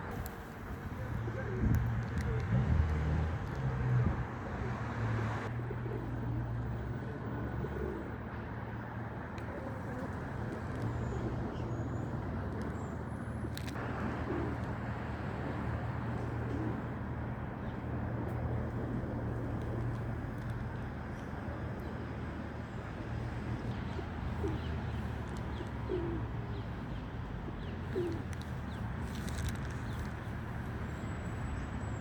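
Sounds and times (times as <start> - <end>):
city traffic rumble: 0.0 - 32.0
pigeons cooing: 1.0 - 2.5, 7.3 - 8.2, 23.8 - 26.6, 27.4 - 30.0.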